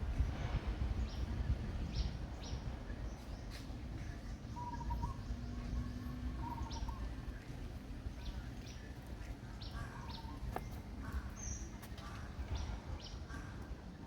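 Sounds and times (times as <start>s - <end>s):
birds chirping: 8.0s - 13.6s.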